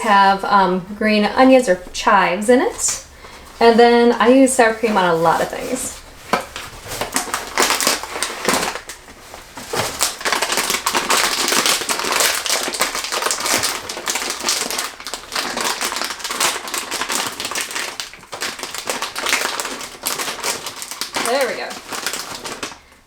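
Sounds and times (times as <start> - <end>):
plastic snack bag crinkling: 3.4 - 23.0.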